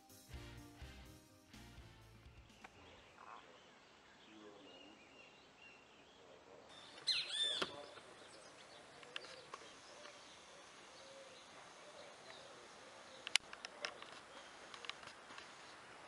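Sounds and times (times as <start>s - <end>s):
faint outdoor background noise: 0.0s - 16.0s
bird chirping: 2.2s - 14.9s.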